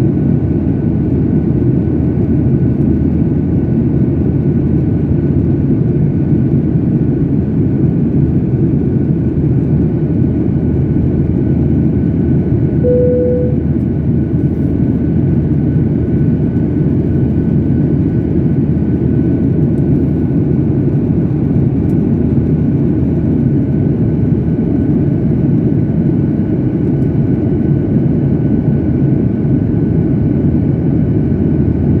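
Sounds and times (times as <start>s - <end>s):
short single tone: 12.8s - 13.7s
faint constant whine: 12.8s - 13.8s.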